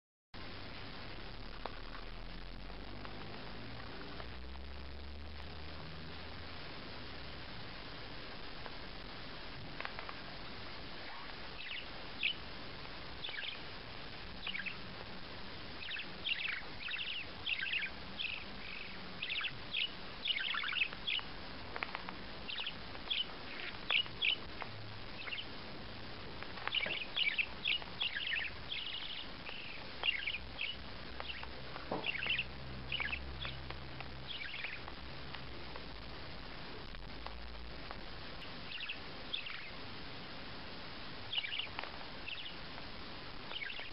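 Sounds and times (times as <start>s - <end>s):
steady background hiss: 0.4s - 43.9s
parrot chirping: 9.8s - 25.6s, 26.2s - 35.8s, 38.4s - 39.8s, 41.2s - 42.7s, 43.4s - 43.9s.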